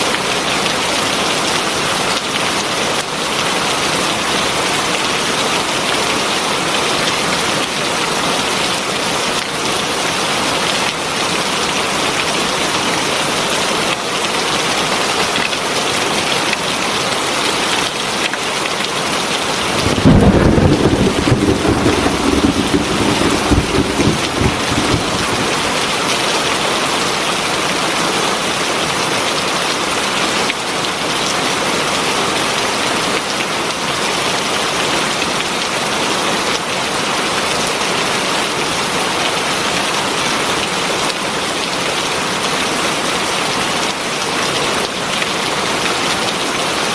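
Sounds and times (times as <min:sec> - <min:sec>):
heavy rain falling: 0:19.4 - 0:26.3
low thunder rumble: 0:19.6 - 0:26.0.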